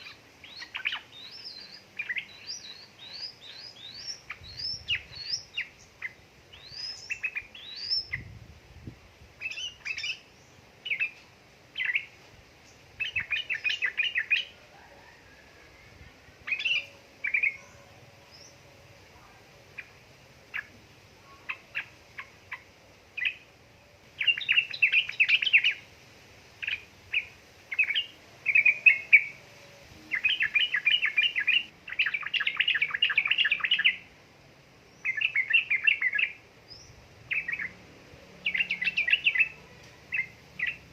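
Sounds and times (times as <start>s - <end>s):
bird chirping and chattering: 0.0s - 8.3s, 30.1s - 34.1s.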